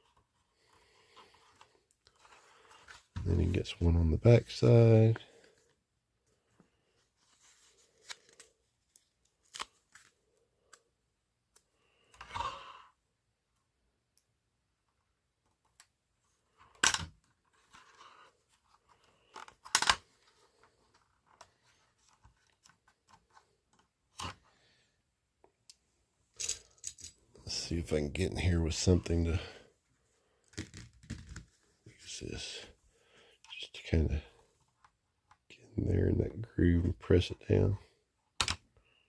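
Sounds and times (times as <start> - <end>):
plastic toy parts clicking: 19.3 - 20.0.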